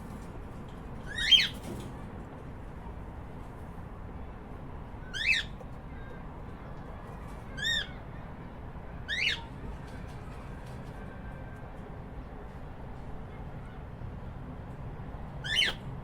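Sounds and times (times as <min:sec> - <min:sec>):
low background noise: 0:00.0 - 0:16.0
cockatiel whistled calls: 0:01.1 - 0:01.5, 0:05.1 - 0:05.5, 0:09.1 - 0:09.5, 0:15.4 - 0:15.8.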